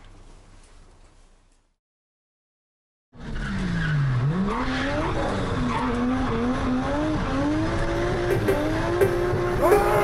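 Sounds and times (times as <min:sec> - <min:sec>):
road and tyre noise: 0:03.1 - 0:10.0
car engine revving: 0:03.5 - 0:10.0.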